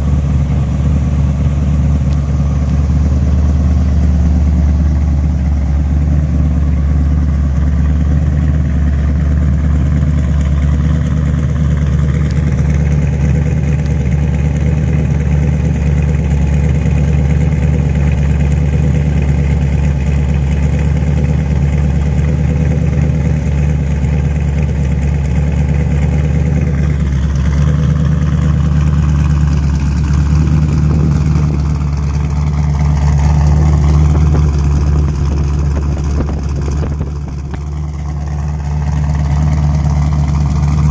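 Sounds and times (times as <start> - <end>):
truck engine running: 0.0 - 40.9.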